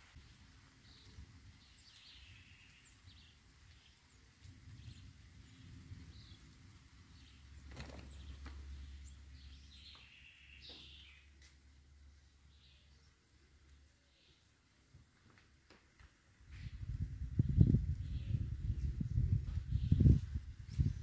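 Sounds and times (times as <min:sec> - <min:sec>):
faint bird chirps: 0:00.8 - 0:04.1, 0:07.2 - 0:11.4.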